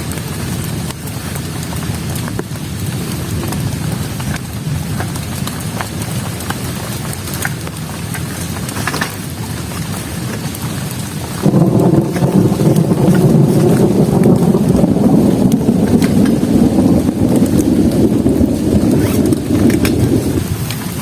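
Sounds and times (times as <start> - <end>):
heavy rain falling: 0.0 - 21.0
rain drop taps: 0.0 - 21.0
deep rumble: 11.0 - 21.0.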